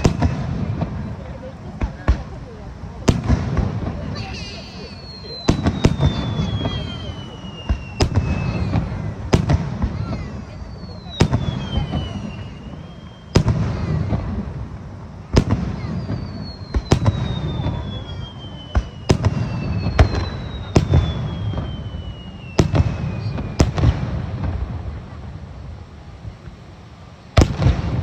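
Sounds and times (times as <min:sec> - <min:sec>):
descending firework whistle: 0:00.0 - 0:00.9, 0:04.0 - 0:14.5, 0:15.3 - 0:24.2
fireworks bangs: 0:00.0 - 0:26.6, 0:27.3 - 0:28.0.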